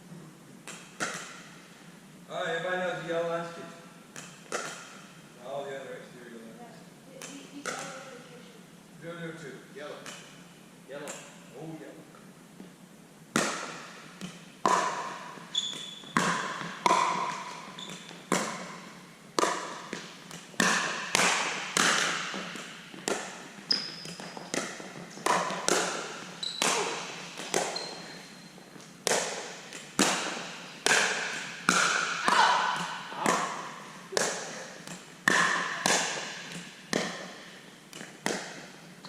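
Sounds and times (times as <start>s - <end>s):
ball bouncing on court: 0.6s - 1.6s, 4.1s - 5.2s, 7.2s - 8.2s, 10.0s - 10.4s, 13.3s - 39.0s
paddles striking plastic ball: 24.1s - 27.8s.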